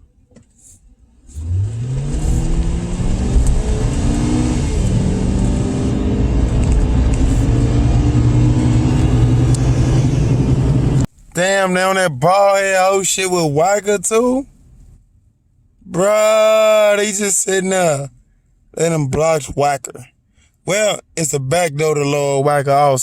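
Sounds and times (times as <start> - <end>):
car engine accelerating: 1.1 - 11.1.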